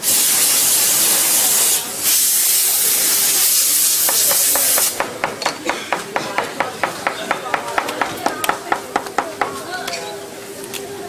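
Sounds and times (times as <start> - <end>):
pressurised spray hissing: 0.0 - 5.1.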